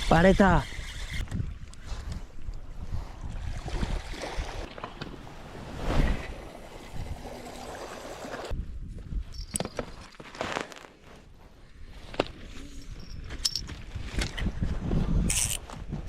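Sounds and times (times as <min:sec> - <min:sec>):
wind rumbling on microphone: 0:00.0 - 0:07.7, 0:08.4 - 0:10.0, 0:11.3 - 0:16.0
sea waves washing on shore: 0:04.0 - 0:08.5.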